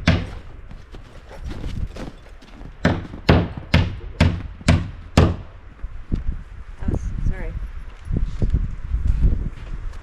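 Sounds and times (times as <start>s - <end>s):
sharp knocks: 0.0s - 0.4s, 2.8s - 5.6s.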